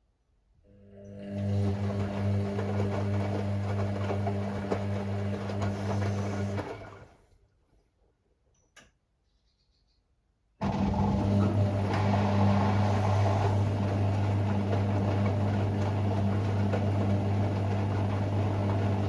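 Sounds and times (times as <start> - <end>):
drain pump humming: 1.2 - 7.1, 10.6 - 19.0.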